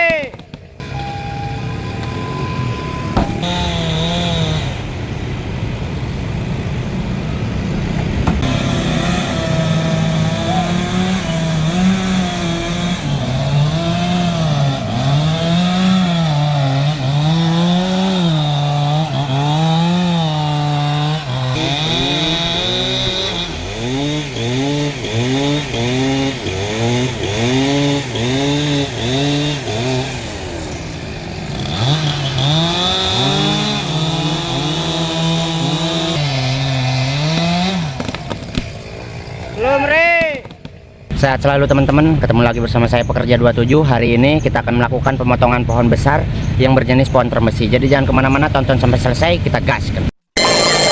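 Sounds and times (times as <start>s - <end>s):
chainsaw cutting wood: 0.1s - 5.2s, 7.5s - 41.1s, 50.3s - 50.9s.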